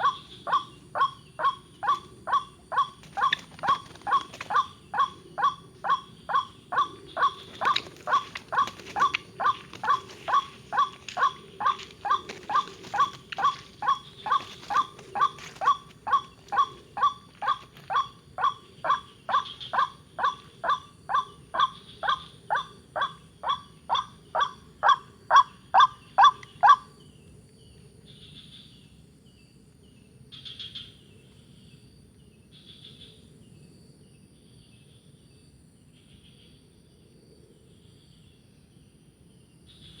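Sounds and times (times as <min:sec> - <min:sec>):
waterhen calling: 0:00.0 - 0:26.8
faint bird chirps: 0:00.0 - 0:29.0
insect buzz: 0:00.0 - 0:36.6.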